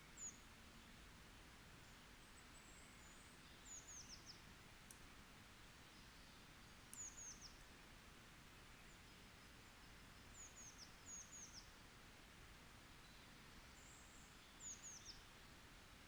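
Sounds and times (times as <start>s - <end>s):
faint high-pitched songbird: 0.0s - 0.5s, 1.8s - 4.5s, 5.8s - 7.6s, 8.7s - 11.8s, 13.0s - 15.5s
low background hiss: 0.0s - 16.0s.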